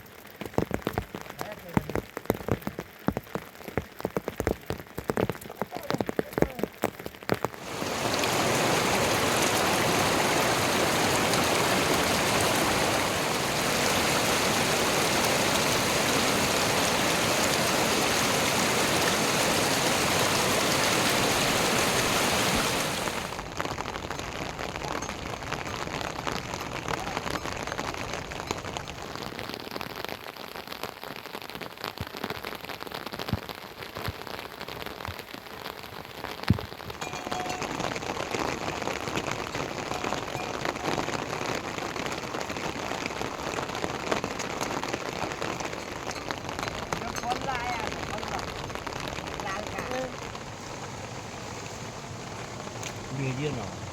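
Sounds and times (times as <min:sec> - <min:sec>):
raindrops ticking: 0:00.0 - 0:53.9
heavy rain hissing: 0:07.6 - 0:30.5, 0:35.5 - 0:53.9.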